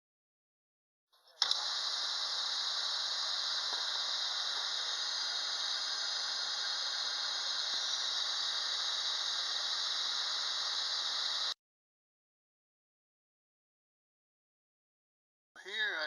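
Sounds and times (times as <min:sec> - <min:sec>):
metal lathe whirring: 0:01.4 - 0:11.6.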